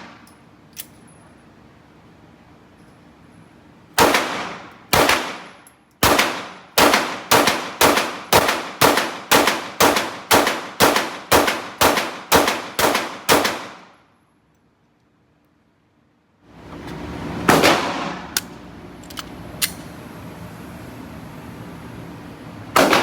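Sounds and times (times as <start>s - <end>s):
gunshots with echo: 22.8s - 23.0s.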